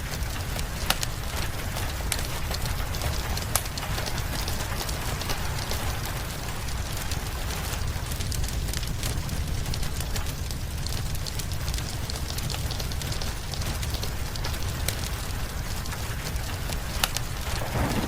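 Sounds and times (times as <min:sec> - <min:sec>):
fire crackling and popping: 0:00.0 - 0:18.0
rain: 0:00.0 - 0:18.0
low rumble: 0:17.4 - 0:18.0.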